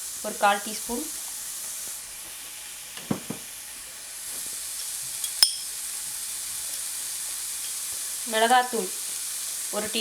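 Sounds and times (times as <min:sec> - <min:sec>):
food sizzling in oil: 0:00.0 - 0:10.0
soft knocks: 0:03.0 - 0:03.5
metal spoon clinking on pan: 0:05.2 - 0:05.8.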